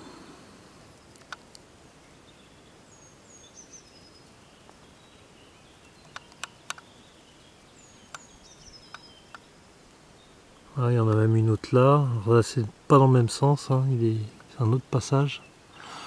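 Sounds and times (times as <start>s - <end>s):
outdoor background hiss: 0.0s - 16.0s
sharp clicks: 1.1s - 1.6s, 6.1s - 6.9s
small bird singing: 1.9s - 12.4s, 13.0s - 16.0s.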